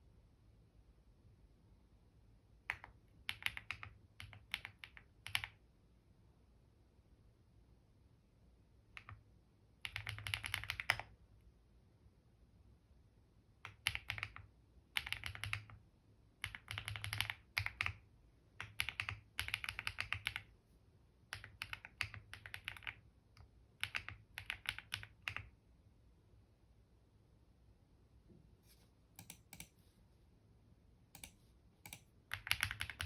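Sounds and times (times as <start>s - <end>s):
computer keyboard typing: 2.6s - 5.6s, 8.9s - 9.2s, 9.8s - 11.2s, 13.6s - 15.8s, 16.4s - 20.5s, 21.3s - 25.6s, 29.2s - 29.8s, 31.1s - 33.0s.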